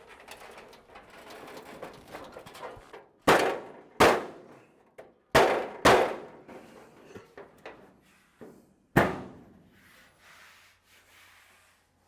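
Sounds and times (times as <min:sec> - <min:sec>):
metallic bangs of sheet metal: 0:05.4 - 0:06.5.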